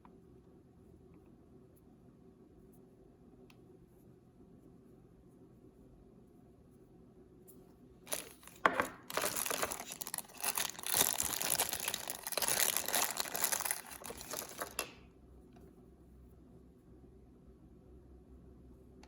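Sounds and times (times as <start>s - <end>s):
plastic packaging crinkling and tearing: 8.1s - 15.0s.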